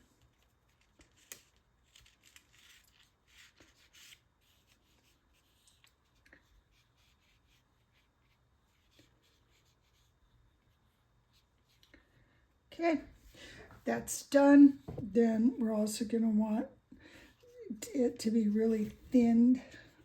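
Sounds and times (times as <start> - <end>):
brush rubbing paint on paper: 1.2 - 11.8.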